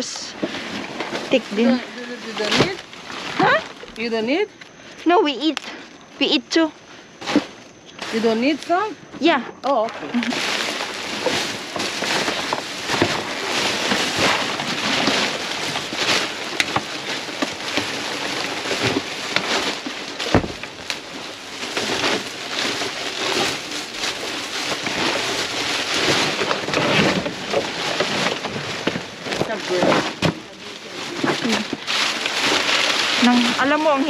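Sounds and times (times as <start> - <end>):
cardboard rustling and knocks: 0.4 - 4.0, 10.2 - 33.9
heavy thump: 20.3 - 20.7.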